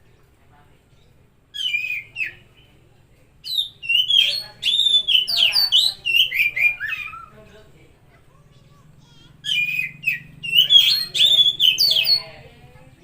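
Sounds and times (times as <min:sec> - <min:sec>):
bird singing whistled notes: 0:01.5 - 0:02.8, 0:03.4 - 0:07.4, 0:09.4 - 0:12.4.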